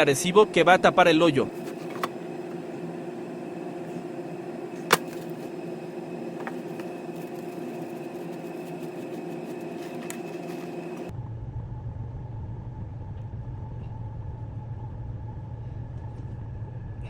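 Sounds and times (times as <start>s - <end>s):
machine hum: 0.0s - 11.1s.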